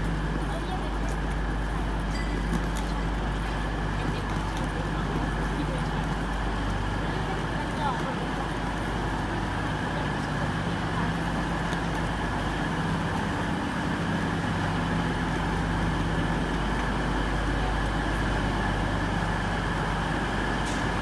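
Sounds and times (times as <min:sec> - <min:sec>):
diesel train engines idling: 0:00.0 - 0:21.0.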